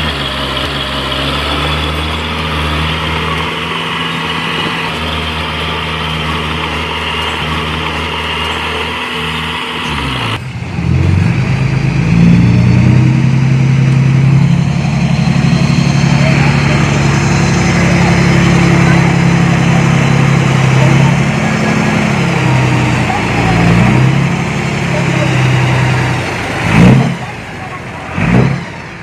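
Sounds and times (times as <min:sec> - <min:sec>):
diesel engine droning: 0:00.0 - 0:29.0.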